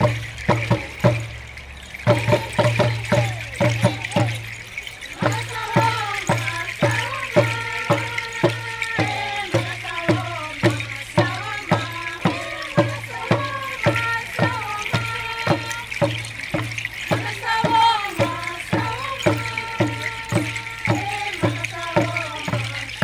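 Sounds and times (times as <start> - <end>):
steady drum beat: 0.0 - 23.0
group singing: 5.1 - 23.0.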